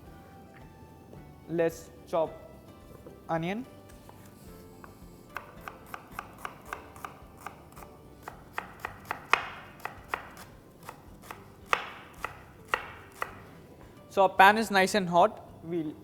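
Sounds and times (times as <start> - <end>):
knife chopping on a board: 3.9 - 13.6.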